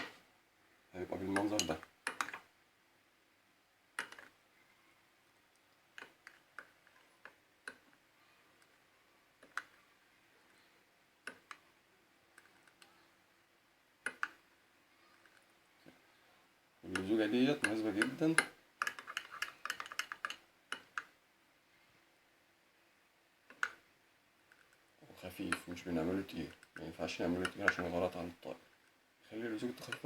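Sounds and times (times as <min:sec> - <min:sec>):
utensil tapping a dish: 0:16.9 - 0:21.0.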